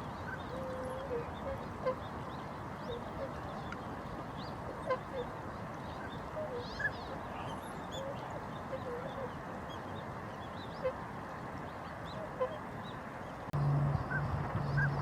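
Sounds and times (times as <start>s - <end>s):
waterfowl honking: 0.0s - 2.1s, 4.7s - 5.3s, 6.0s - 9.3s, 12.1s - 12.7s, 13.9s - 15.0s
steady background hiss: 0.0s - 15.0s.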